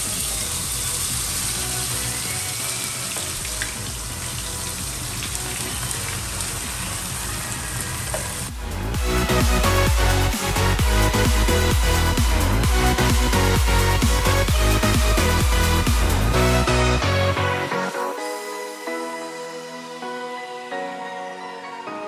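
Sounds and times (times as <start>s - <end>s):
food sizzling in hot oil: 0.0s - 8.6s
background music: 0.0s - 22.0s.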